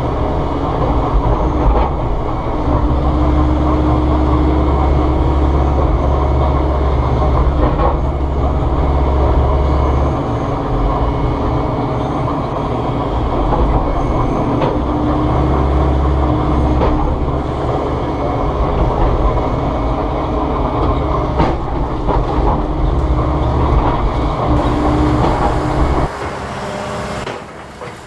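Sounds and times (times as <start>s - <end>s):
excavator diesel engine rumbling: 0.0s - 28.0s.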